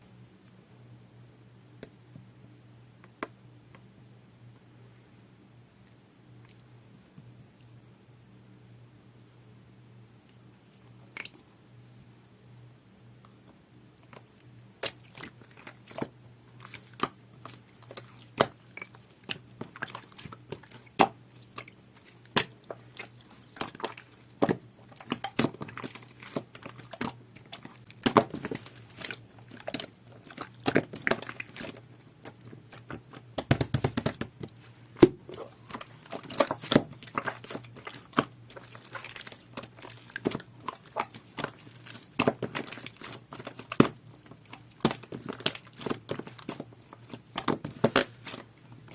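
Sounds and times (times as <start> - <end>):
slime squelching by hand: 11.1 - 11.4, 13.9 - 48.9.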